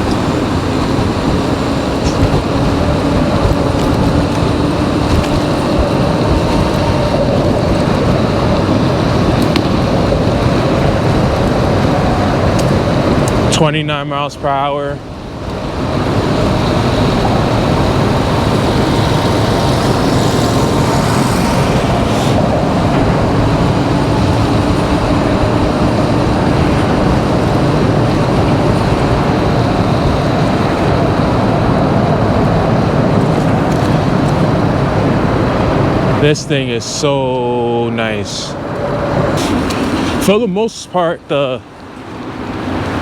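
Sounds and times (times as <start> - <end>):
tyre noise: 0.0 - 13.7
loud wind rush: 0.0 - 43.0.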